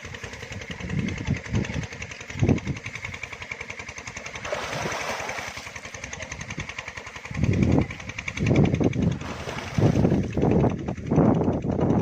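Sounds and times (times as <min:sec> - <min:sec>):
small engine running: 0:00.0 - 0:12.0
loud low rumbling blasts: 0:04.0 - 0:12.0.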